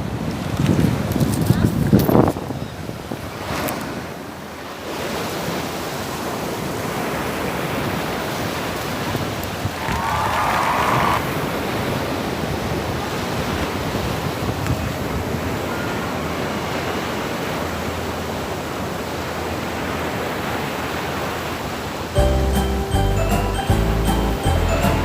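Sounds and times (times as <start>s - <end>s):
rushing water: 2.9s - 22.9s.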